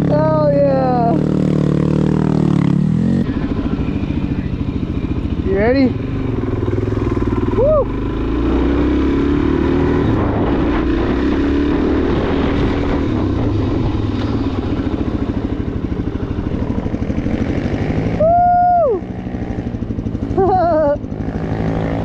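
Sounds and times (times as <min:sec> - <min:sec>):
motorcycle engine under throttle: 0:00.0 - 0:22.0
warbling whoop: 0:07.5 - 0:08.1, 0:18.1 - 0:19.2.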